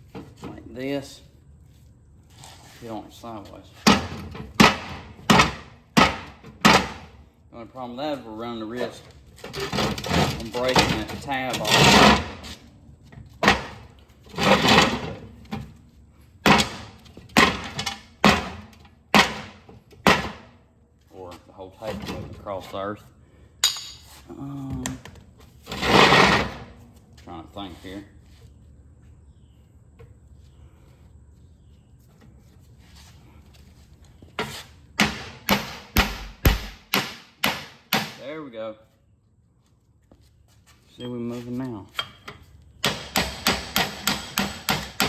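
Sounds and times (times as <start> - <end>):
hammer striking steel spindle: 35.0 - 38.2.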